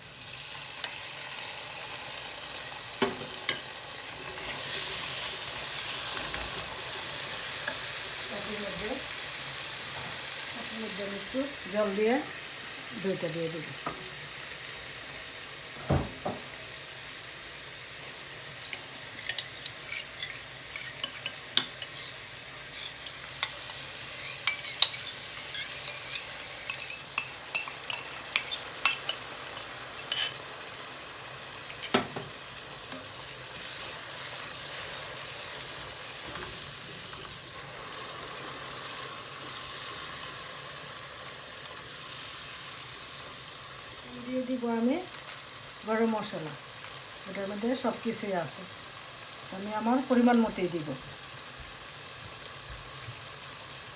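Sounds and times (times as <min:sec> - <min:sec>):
food sizzling in a pan: 0:00.0 - 0:53.9
spoon scraping a pan: 0:03.0 - 0:08.1, 0:18.3 - 0:31.0, 0:31.7 - 0:33.9
knock: 0:15.8 - 0:16.5.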